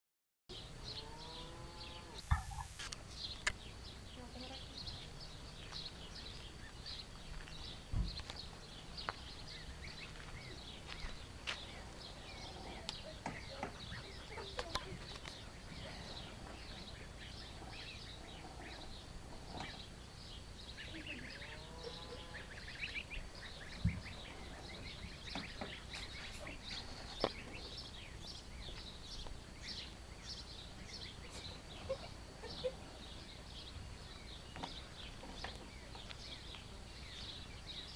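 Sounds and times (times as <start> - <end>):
small birds chirping: 0.5 - 37.9
wavering animal call: 21.2 - 22.9.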